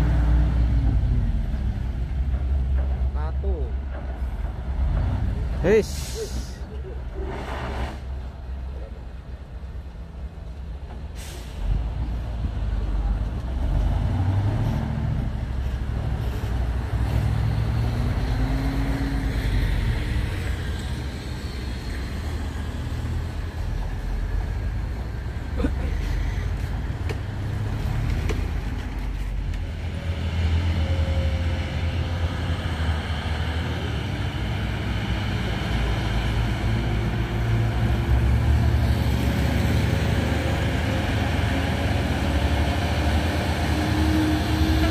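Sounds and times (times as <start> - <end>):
diesel truck engines: 0.0 - 44.9
air brake hisses: 11.2 - 11.7.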